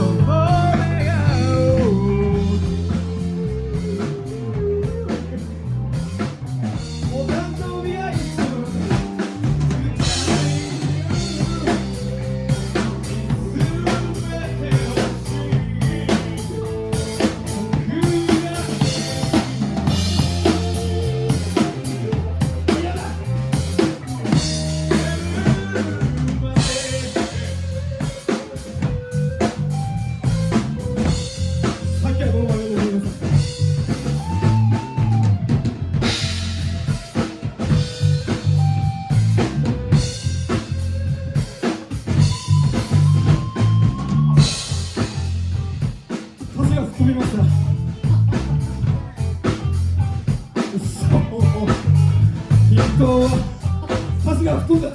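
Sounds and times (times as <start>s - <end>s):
live rock band: 0.0s - 54.9s
drum kit hits: 6.0s - 29.0s.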